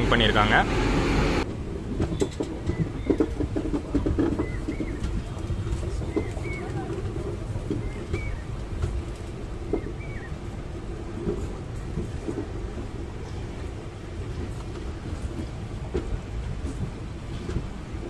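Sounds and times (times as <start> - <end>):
train coaches rumbling: 0.0 - 18.0.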